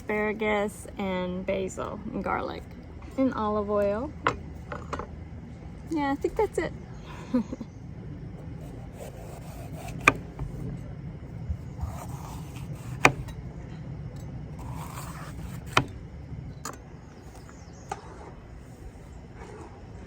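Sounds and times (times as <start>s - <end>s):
steady low hum: 0.0s - 20.0s
utensils scraping: 8.4s - 10.6s, 11.7s - 13.4s, 14.6s - 16.0s.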